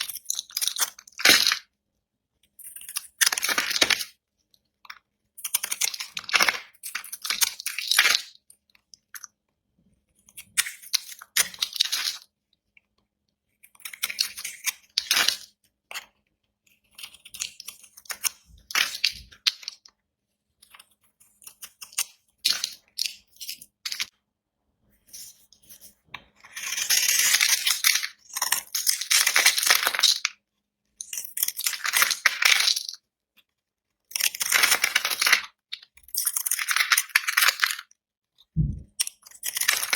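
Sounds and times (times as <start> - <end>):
knife cutting bar soap: 25.7 - 29.9.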